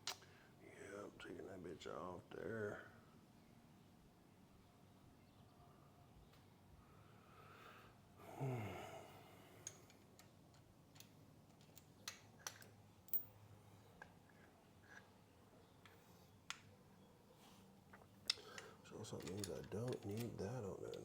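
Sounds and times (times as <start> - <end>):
short falling sigh: 8.2 - 9.6
tools and metal parts clicking: 9.6 - 15.1, 17.9 - 21.0.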